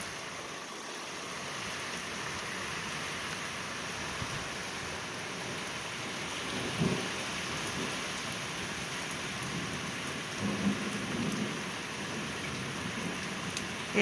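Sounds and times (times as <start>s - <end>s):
steady soaking rain: 0.0s - 14.0s
distant thunder rumbles: 6.4s - 8.1s, 9.4s - 14.0s.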